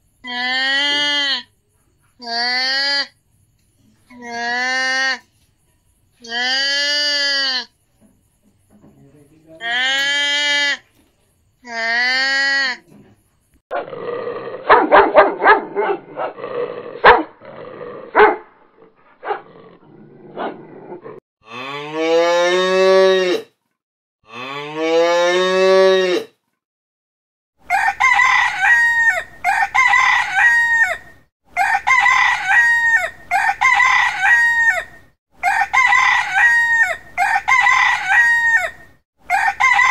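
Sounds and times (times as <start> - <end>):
long drawn-out animal calls: 6.2 - 7.7.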